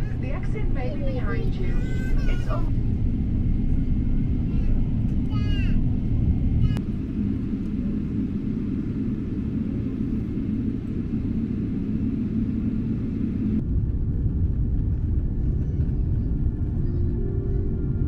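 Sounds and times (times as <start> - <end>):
airliner engine rumble in cabin: 0.0 - 18.0.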